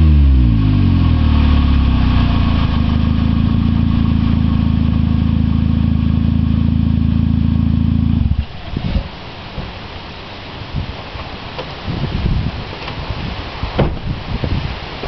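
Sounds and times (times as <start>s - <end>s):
car engine idling: 0.0s - 11.5s
faint wind: 0.0s - 15.0s.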